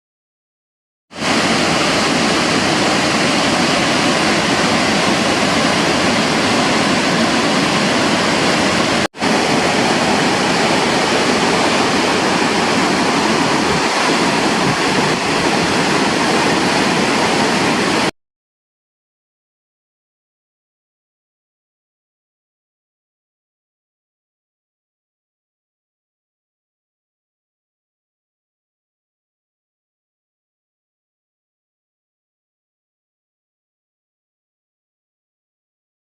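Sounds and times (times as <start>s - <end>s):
waterfall rushing: 1.2s - 18.1s.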